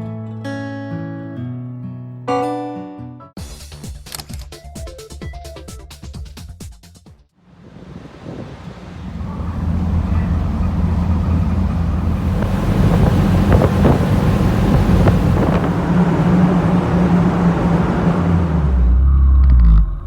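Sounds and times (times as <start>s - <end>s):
wind noise on microphone: 7.5s - 18.9s
small motorcycle engine running: 9.0s - 18.4s.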